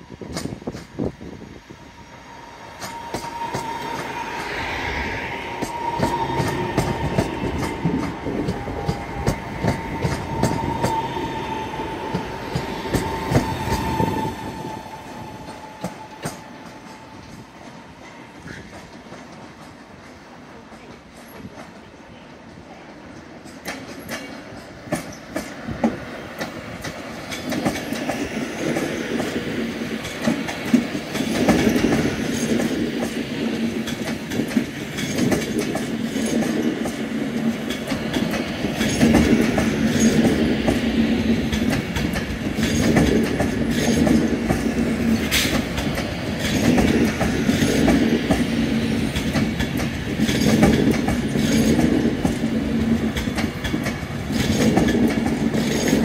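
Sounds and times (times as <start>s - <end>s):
electric train rolling past: 0.0s - 56.0s
wheels clacking over rail joints: 5.5s - 11.1s, 23.4s - 56.0s.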